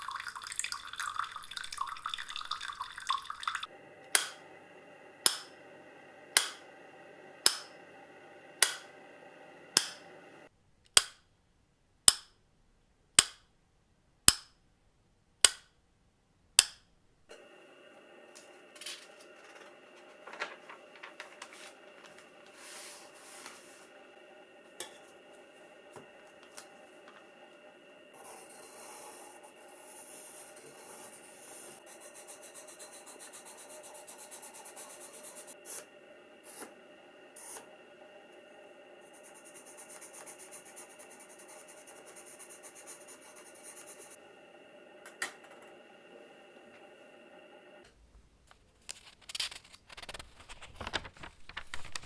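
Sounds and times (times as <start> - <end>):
faint rubbing and tapping: 47.9 - 52.0.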